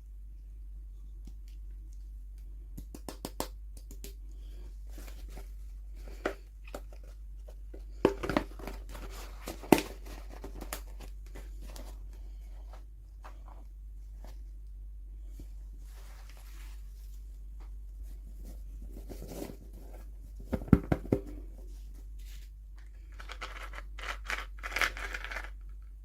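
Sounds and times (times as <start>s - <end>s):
steady low hum: 0.0s - 23.6s
clicks and taps: 1.2s - 4.3s.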